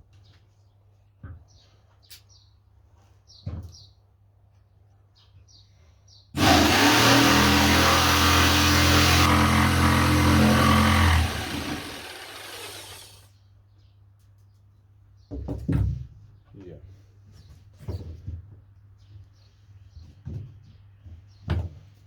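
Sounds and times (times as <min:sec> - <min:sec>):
jigsaw running: 0:06.4 - 0:13.3.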